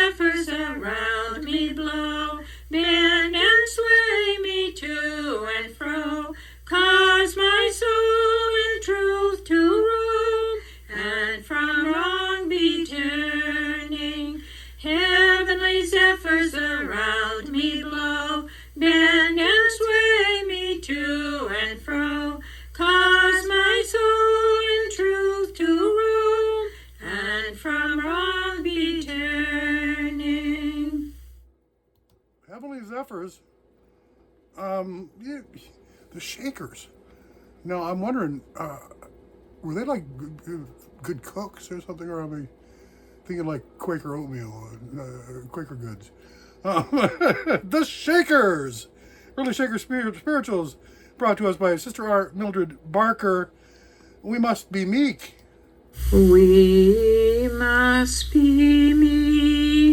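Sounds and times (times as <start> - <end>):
woman singing unaccompanied: 0.0 - 31.2, 56.0 - 59.9
steady low hum: 0.0 - 59.9.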